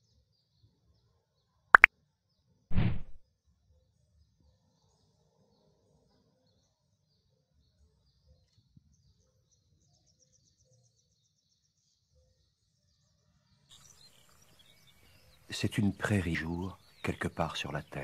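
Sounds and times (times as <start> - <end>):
faint bird chirps: 13.7 - 18.0.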